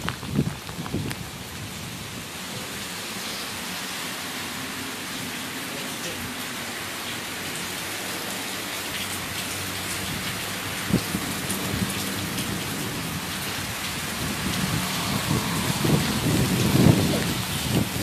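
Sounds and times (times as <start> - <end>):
heavy rain: 0.0 - 18.0.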